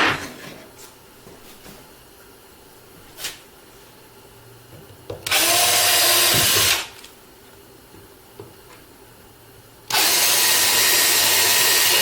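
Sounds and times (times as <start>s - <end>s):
power drill boring into wood: 5.3s - 6.9s, 9.9s - 12.0s.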